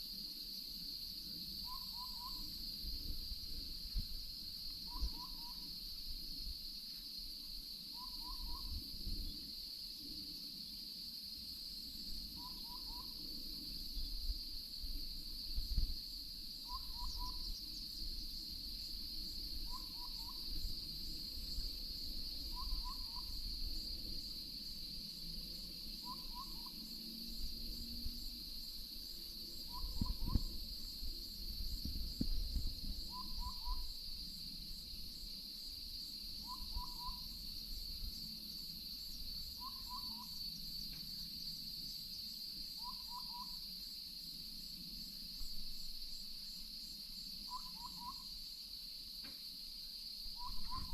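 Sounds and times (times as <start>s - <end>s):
high insect drone: 0.0s - 50.9s
owl whistled hoots: 1.6s - 2.6s, 4.8s - 5.7s, 7.9s - 8.9s, 12.3s - 13.3s, 16.6s - 17.6s, 19.6s - 20.7s, 22.5s - 23.4s, 26.0s - 26.8s, 29.6s - 30.6s, 33.1s - 34.0s, 36.4s - 37.4s, 39.6s - 40.4s, 42.8s - 43.6s, 47.5s - 48.4s, 50.3s - 50.9s.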